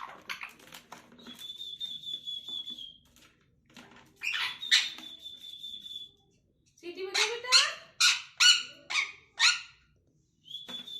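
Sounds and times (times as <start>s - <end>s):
parrot whistling: 4.2s - 6.1s
parrot squawk: 7.1s - 9.8s.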